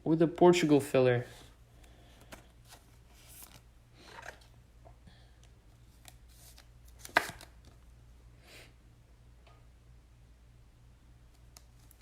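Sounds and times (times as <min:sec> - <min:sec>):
cards clicking and sliding: 0:05.8 - 0:07.8.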